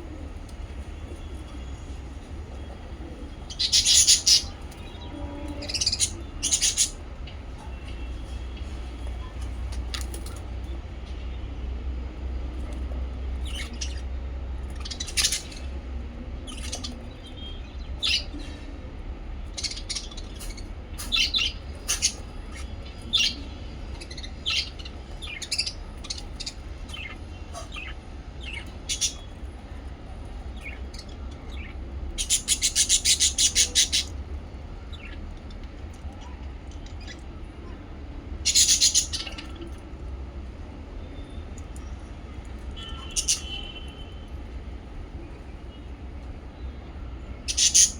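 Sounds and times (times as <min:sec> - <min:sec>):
low steady hum: 0:00.0 - 0:47.6
parrots chirping: 0:03.0 - 0:08.1, 0:13.3 - 0:15.8, 0:16.4 - 0:18.4, 0:19.5 - 0:29.8, 0:30.5 - 0:37.2, 0:38.4 - 0:39.8, 0:42.8 - 0:43.8, 0:47.4 - 0:47.9.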